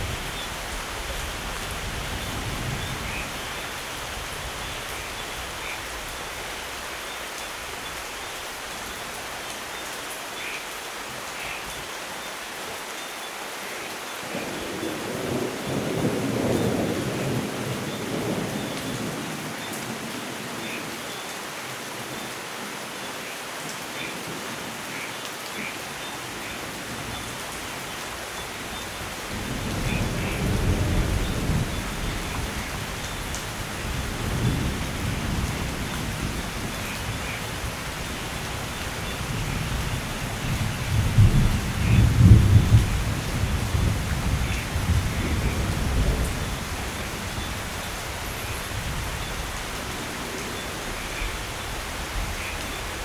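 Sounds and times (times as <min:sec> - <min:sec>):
steady rain: 0:00.0 - 0:53.0
rolling thunder: 0:29.3 - 0:33.0, 0:39.1 - 0:47.6.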